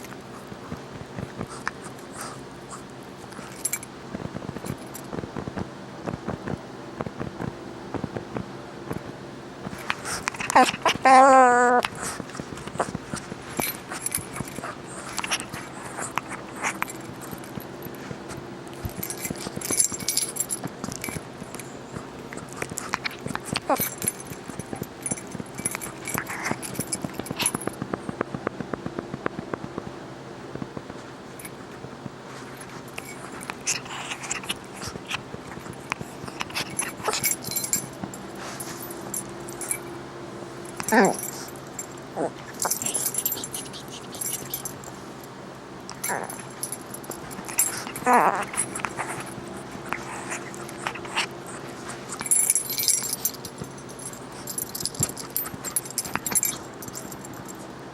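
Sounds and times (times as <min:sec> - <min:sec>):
clicks and taps of dog playing: 0:00.0 - 0:29.9, 0:30.6 - 0:39.9, 0:40.7 - 0:45.3, 0:45.9 - 0:57.6
light metallic jingling: 0:03.3 - 0:03.9, 0:09.8 - 0:18.0, 0:18.7 - 0:27.8, 0:32.4 - 0:40.0, 0:40.6 - 0:57.8.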